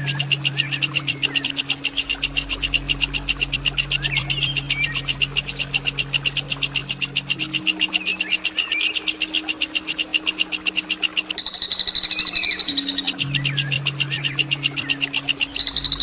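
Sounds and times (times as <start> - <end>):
songbird rolling trill: 11.3 - 16.0.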